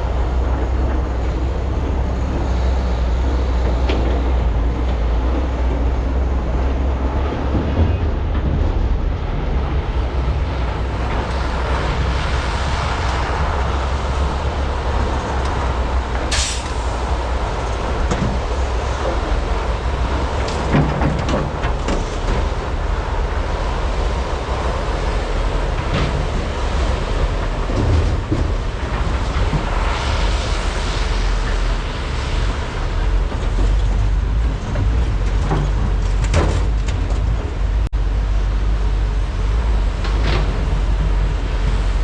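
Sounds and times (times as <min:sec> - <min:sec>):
diesel excavators rumbling: 0:00.0 - 0:42.0
short hiss: 0:16.3 - 0:17.0.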